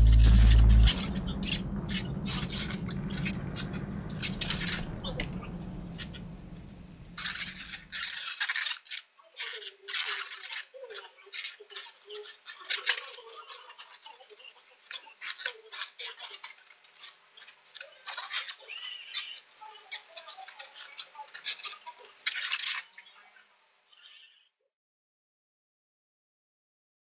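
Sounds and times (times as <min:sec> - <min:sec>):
balloons rubbing and squeaking: 0:00.0 - 0:08.4.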